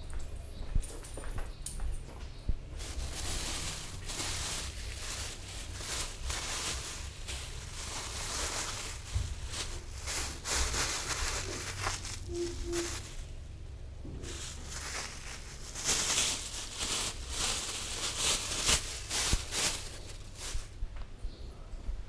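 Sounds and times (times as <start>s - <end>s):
scooter engine rumble: 0.8s - 21.5s
short tones: 12.2s - 13.2s.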